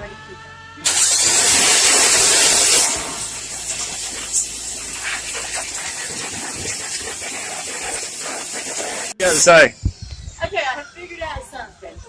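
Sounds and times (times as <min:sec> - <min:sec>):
pressure washer jet hissing: 0:00.8 - 0:09.6.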